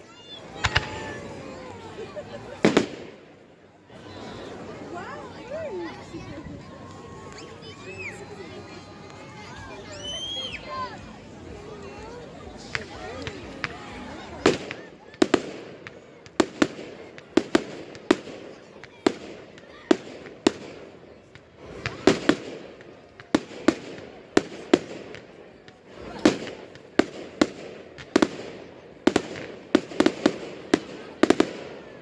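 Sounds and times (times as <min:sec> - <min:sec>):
fireworks bangs: 0:00.2 - 0:03.5, 0:12.0 - 0:32.0.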